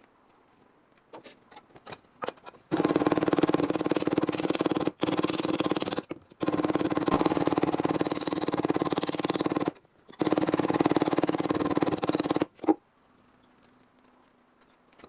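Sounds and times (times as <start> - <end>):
power cutter chattering through sheet metal: 6.8 - 12.5.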